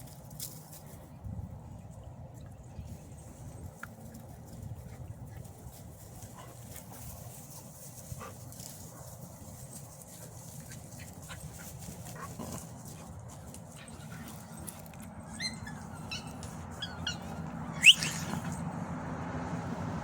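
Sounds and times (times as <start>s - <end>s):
puppies whimpering and yelping: 13.9s - 18.7s.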